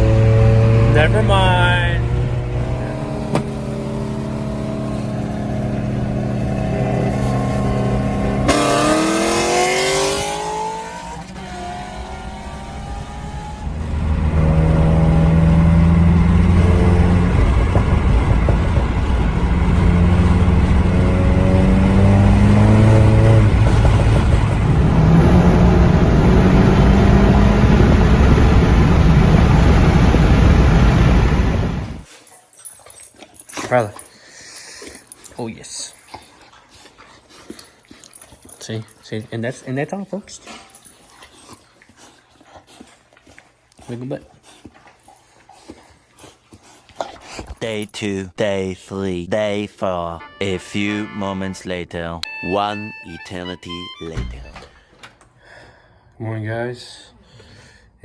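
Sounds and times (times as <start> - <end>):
car engine accelerating: 0.0 - 32.1.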